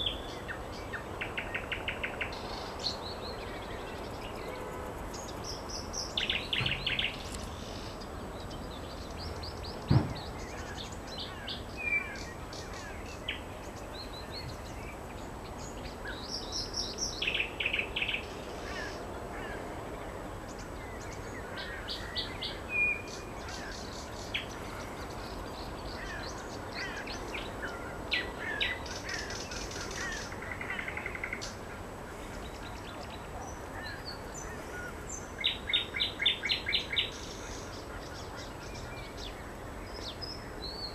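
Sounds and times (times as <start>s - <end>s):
nightingale singing: 0.0s - 19.0s, 20.4s - 31.6s, 32.3s - 40.9s
background hiss: 0.0s - 40.9s
sharp knock: 9.9s - 10.2s.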